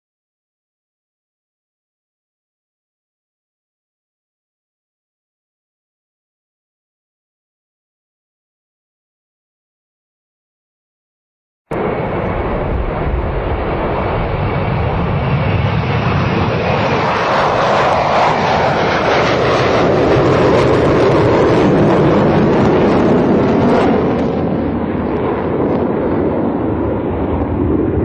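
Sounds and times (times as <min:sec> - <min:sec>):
aircraft engine rushing: 0:11.7 - 0:28.0.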